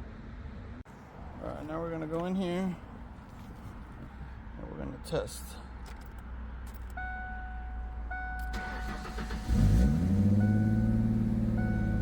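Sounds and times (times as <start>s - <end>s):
dashboard warning chime: 7.0s - 9.2s, 10.3s - 12.0s
car engine cranking and idling: 8.1s - 12.0s.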